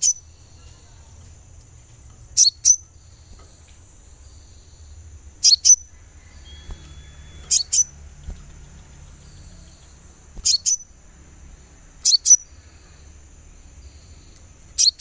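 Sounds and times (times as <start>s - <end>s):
bird giving sharp high chirps: 2.4s - 3.4s, 5.4s - 11.1s, 12.0s - 12.6s, 14.7s - 15.0s.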